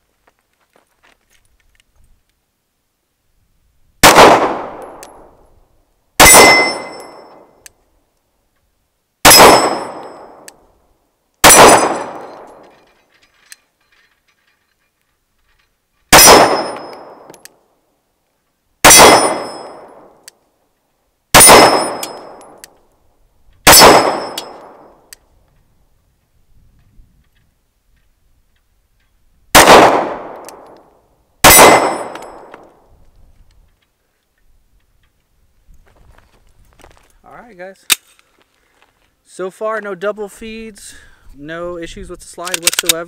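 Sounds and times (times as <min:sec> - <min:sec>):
pistol shots with echo: 0:04.0 - 0:05.3, 0:06.2 - 0:07.1, 0:09.2 - 0:10.5, 0:11.4 - 0:12.7, 0:16.1 - 0:17.2, 0:18.8 - 0:20.1, 0:21.4 - 0:22.5, 0:23.6 - 0:24.9, 0:29.5 - 0:30.7, 0:31.4 - 0:32.6
bullets ringing steel targets: 0:06.2 - 0:07.6, 0:09.2 - 0:10.5, 0:11.4 - 0:13.0, 0:16.1 - 0:17.4, 0:18.8 - 0:20.1, 0:21.4 - 0:22.6, 0:23.7 - 0:25.0, 0:31.4 - 0:32.6.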